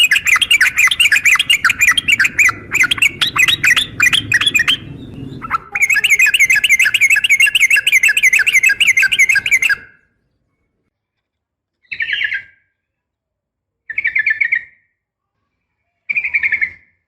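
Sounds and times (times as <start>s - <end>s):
bulbul chattering call: 0.0s - 9.8s.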